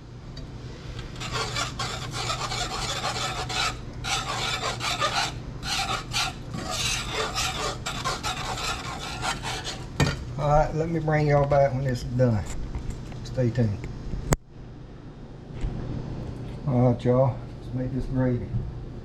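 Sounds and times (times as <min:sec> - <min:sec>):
whisk scraping a pan: 0:01.0 - 0:10.0.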